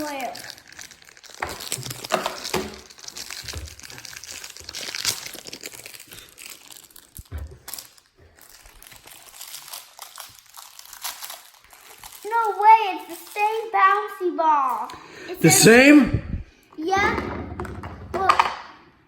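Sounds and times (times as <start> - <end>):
plastic packaging crinkling: 0.0 - 13.7.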